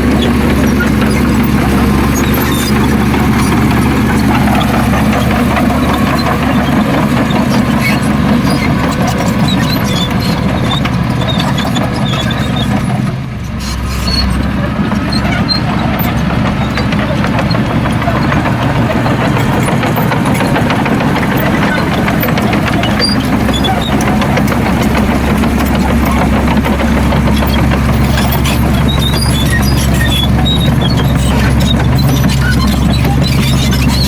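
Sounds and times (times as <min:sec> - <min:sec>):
heavy diesel machinery running: 0:00.0 - 0:34.0.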